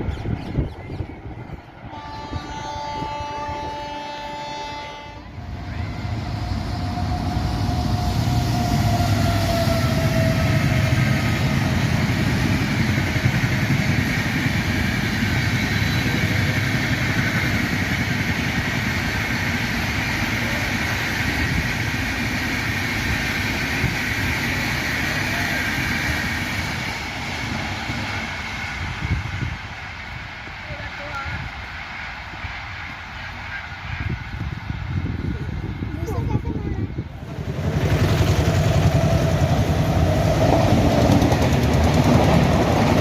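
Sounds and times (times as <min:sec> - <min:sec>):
train passing at speed: 0:00.0 - 0:43.0
train horn blast: 0:01.8 - 0:10.7.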